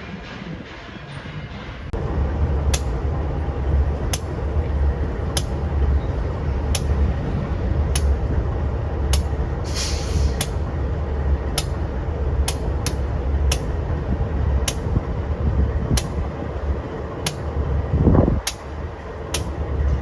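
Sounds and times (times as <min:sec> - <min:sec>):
train rumbling: 0:00.0 - 0:20.0
sharp irregular clicks: 0:02.7 - 0:03.1, 0:04.0 - 0:07.3, 0:07.9 - 0:08.3, 0:09.1 - 0:09.4, 0:11.5 - 0:15.0, 0:18.4 - 0:19.6.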